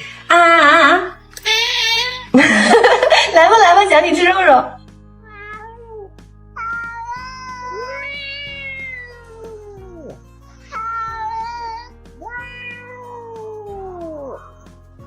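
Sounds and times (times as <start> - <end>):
background music: 0.0 - 15.0
cat meowing: 5.2 - 14.6.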